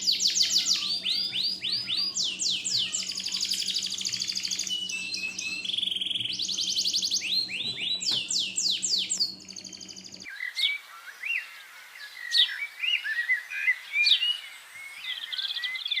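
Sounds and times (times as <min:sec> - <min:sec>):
steady low hum: 0:00.0 - 0:10.3
parakeets chirping and chattering: 0:00.0 - 0:10.6.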